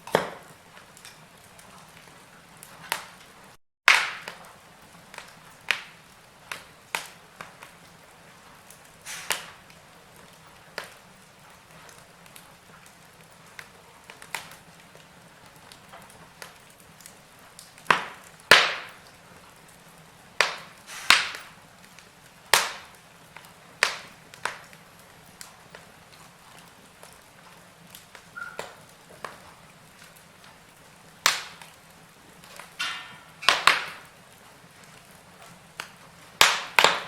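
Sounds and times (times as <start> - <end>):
faint steady hiss: 0.0 - 37.0
wood fire crackling and popping: 0.0 - 37.0.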